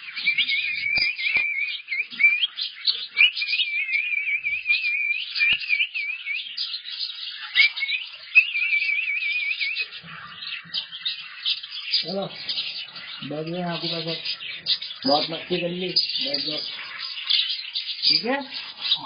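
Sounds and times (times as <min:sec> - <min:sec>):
cockatiel warbling whistle: 0:00.2 - 0:02.5.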